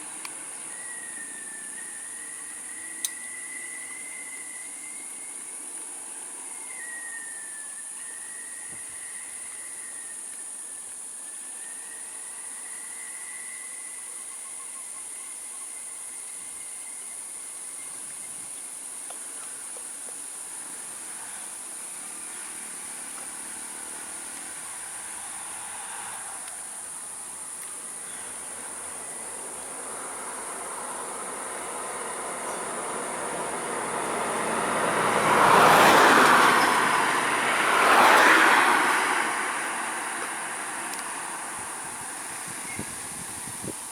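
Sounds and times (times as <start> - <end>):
wavering whistle-like tone: 0.0 - 5.6, 6.5 - 17.2
insects droning: 0.0 - 43.9
vehicle approaching: 20.7 - 43.3.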